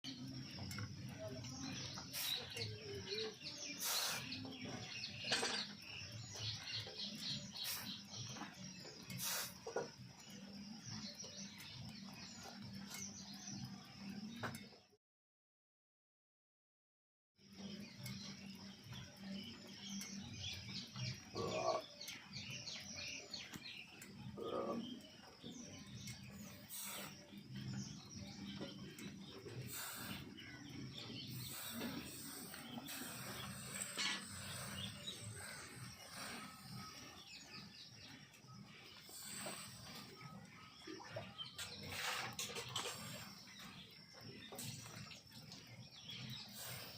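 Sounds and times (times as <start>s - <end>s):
small birds chirping: 0.0s - 15.0s, 17.4s - 46.9s
iron ticking with heat: 0.1s - 14.7s, 17.4s - 46.9s
lower bird calls: 17.6s - 46.9s.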